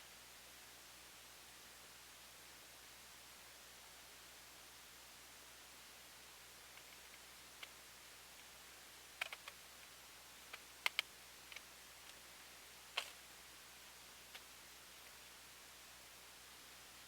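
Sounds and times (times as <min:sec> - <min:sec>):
faint clicks and taps: 0:09.2 - 0:09.9, 0:10.5 - 0:12.2.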